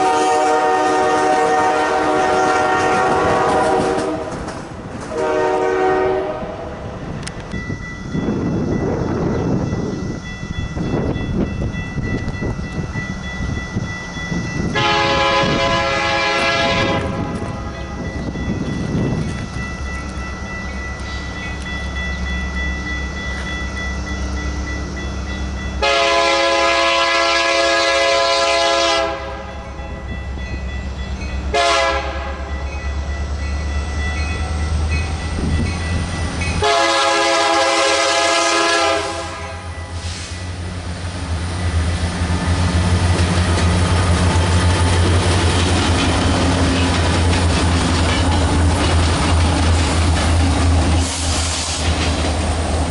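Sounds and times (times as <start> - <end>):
train horn blasts: 0.0 - 6.7, 14.6 - 18.1, 25.8 - 29.6, 31.5 - 32.6, 36.6 - 40.1
locomotive engine rumbling: 0.0 - 52.9
train wheel noise: 0.0 - 52.9.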